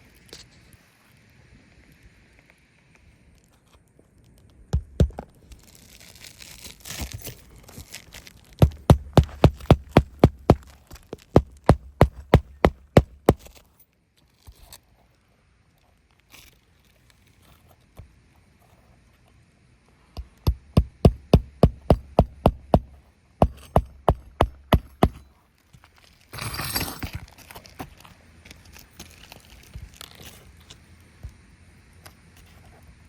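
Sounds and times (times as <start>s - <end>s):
sharp knocks: 8.6s - 10.7s, 11.3s - 13.5s, 20.4s - 25.2s.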